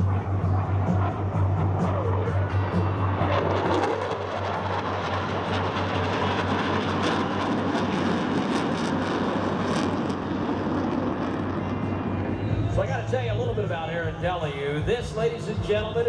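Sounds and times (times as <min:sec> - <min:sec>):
aircraft engine passing overhead: 0:00.0 - 0:16.0.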